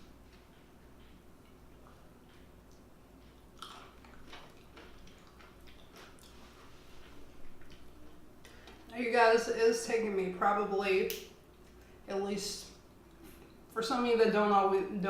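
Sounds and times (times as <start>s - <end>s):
person chewing: 0.0s - 8.9s.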